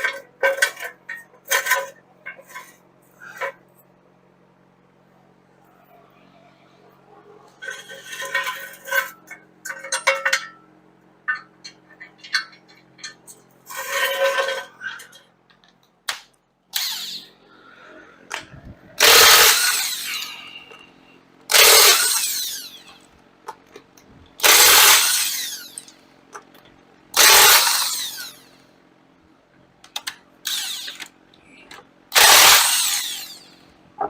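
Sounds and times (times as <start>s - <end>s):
power tool spinning off lug nuts: 16.7s - 17.3s, 19.0s - 20.8s, 21.5s - 23.1s, 24.4s - 26.0s, 27.1s - 28.6s, 30.0s - 31.2s, 32.1s - 33.7s.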